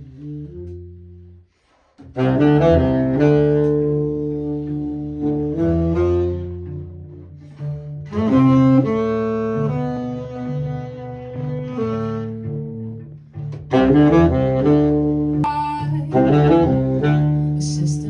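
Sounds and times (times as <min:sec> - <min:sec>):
bowed cello sustained notes: 0:14.1 - 0:18.0.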